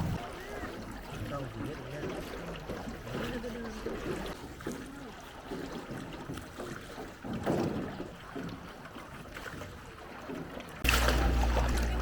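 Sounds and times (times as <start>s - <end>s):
water splashing from rowing boat: 0.0s - 12.0s.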